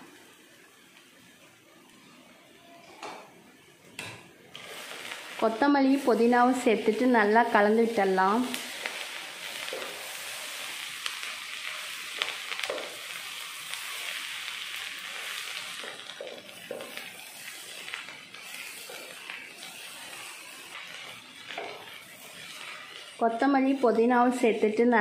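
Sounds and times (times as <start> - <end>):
food sizzling in a pan: 0.0 - 25.0.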